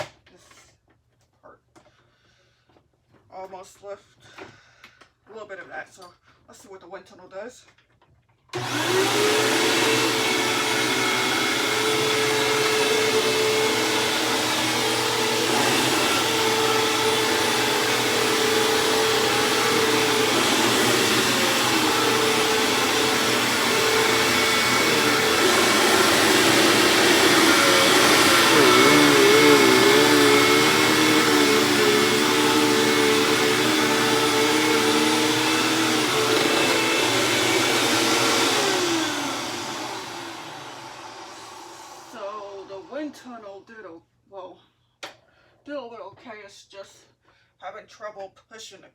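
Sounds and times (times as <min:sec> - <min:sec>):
upright vacuum cleaner running: 0:08.6 - 0:43.1.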